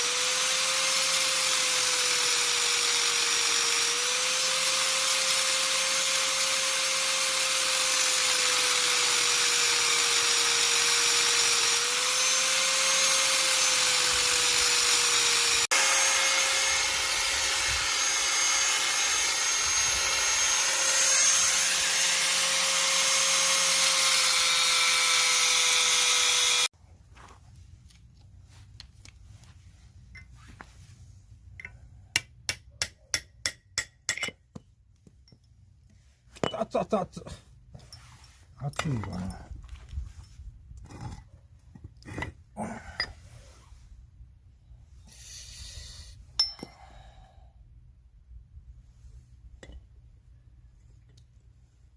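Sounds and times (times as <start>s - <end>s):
electric power tool whining: 0.0s - 26.7s.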